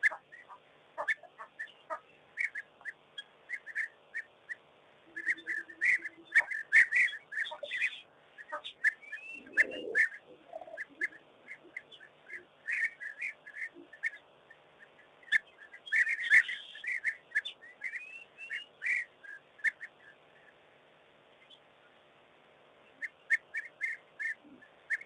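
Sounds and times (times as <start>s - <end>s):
bird whistling calls: 2.4s - 14.2s, 14.8s - 19.9s, 23.0s - 25.0s.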